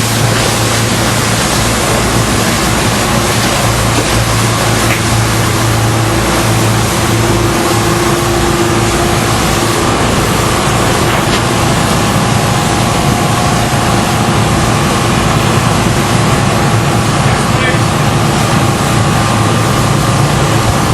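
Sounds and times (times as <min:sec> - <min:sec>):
motorboat engine running: 0:00.0 - 0:20.9
rush of wind and water: 0:00.0 - 0:20.9.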